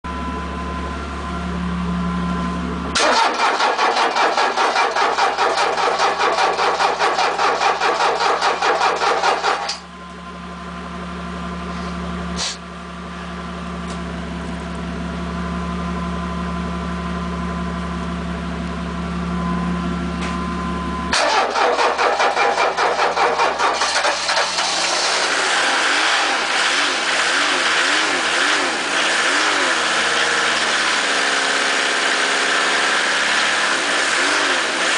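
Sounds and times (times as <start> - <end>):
diesel engine rough idle: 0.1 - 31.1
starter cranking engine: 3.0 - 9.8, 21.1 - 25.3.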